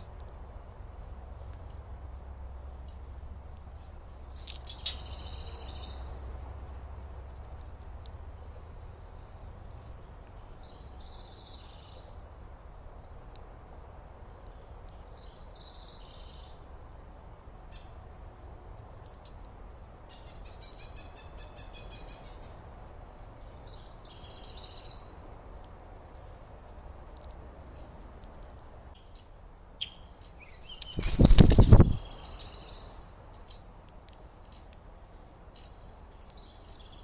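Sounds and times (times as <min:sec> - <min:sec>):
songbirds chirping: 0:00.0 - 0:37.0
steady low rumble: 0:00.0 - 0:37.0
bird trill: 0:20.1 - 0:22.6.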